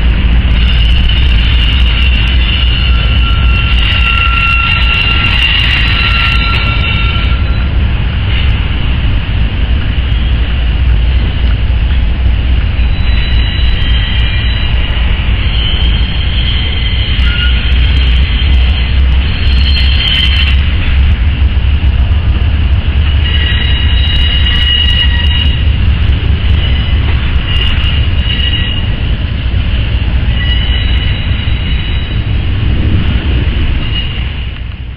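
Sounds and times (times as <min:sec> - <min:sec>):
freight train rumbling: 0:00.0 - 0:34.9
high-pitched wheel squeals: 0:00.5 - 0:08.5, 0:12.8 - 0:21.1, 0:23.0 - 0:32.7, 0:33.5 - 0:34.9.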